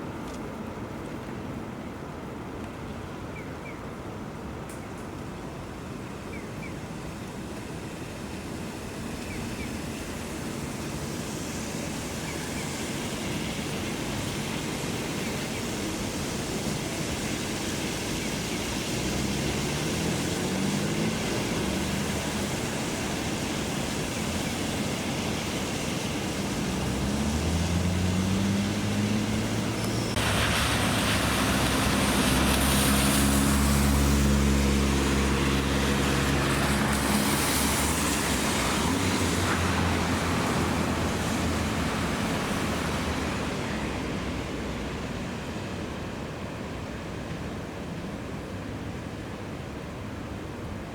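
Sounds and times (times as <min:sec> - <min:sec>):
hum of engines: 0:00.0 - 0:50.9
hiss of spray or rain: 0:04.7 - 0:50.9
vehicles speeding past: 0:17.8 - 0:46.0.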